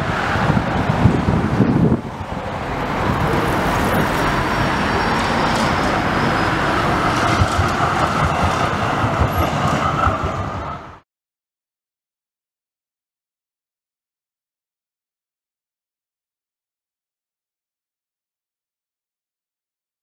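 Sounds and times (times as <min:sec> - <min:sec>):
city traffic: 0:00.0 - 0:11.0
electric tram rail and motor noise: 0:00.0 - 0:11.0.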